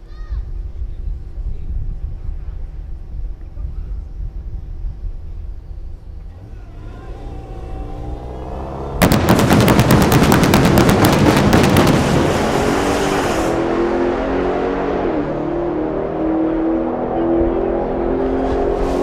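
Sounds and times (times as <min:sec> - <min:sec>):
crackling engine blast: 0:06.3 - 0:14.9
car engine revving: 0:06.3 - 0:19.0.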